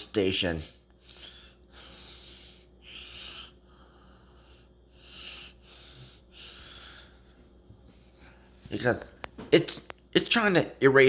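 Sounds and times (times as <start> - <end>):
faint steady hum: 0.0 - 11.0
person breathing: 1.0 - 8.7.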